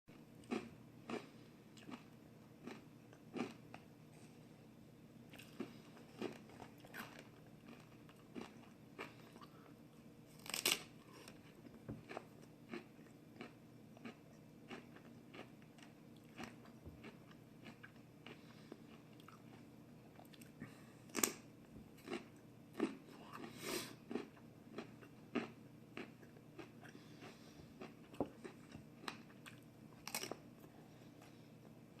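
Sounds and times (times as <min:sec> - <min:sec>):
crunchy chewing: 0:00.1 - 0:03.9, 0:05.3 - 0:21.4, 0:22.0 - 0:31.4
sharp crunchy bites: 0:10.4 - 0:11.4.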